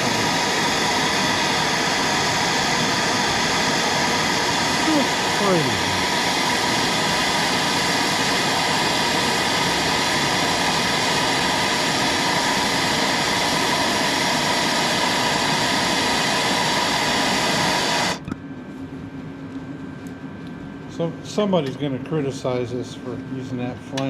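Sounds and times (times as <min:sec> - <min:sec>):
gas torch flame roaring: 0:00.0 - 0:18.2.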